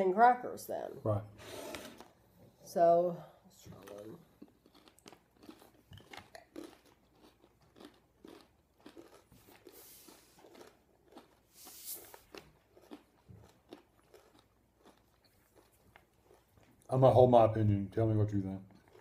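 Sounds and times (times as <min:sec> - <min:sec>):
crunching and chewing: 0:03.5 - 0:17.0, 0:18.6 - 0:19.0.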